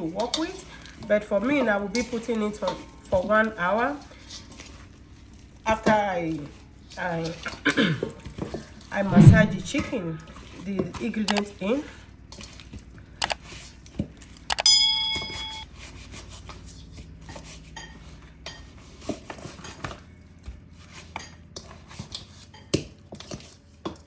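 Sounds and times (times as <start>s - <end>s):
loud ringing clink: 14.6s - 15.6s
dishes and utensils clinking: 14.8s - 15.6s.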